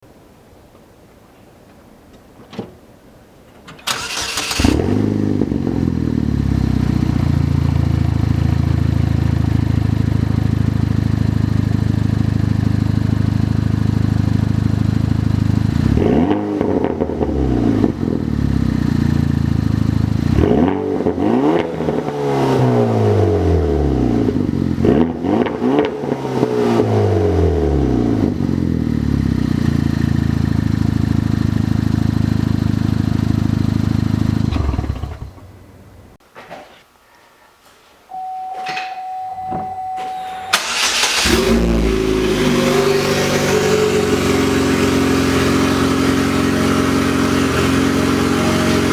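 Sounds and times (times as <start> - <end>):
car engine starting and idling: 3.7 - 36.2, 38.2 - 48.9
car engine revving: 3.9 - 11.2, 15.3 - 35.5, 40.2 - 48.9.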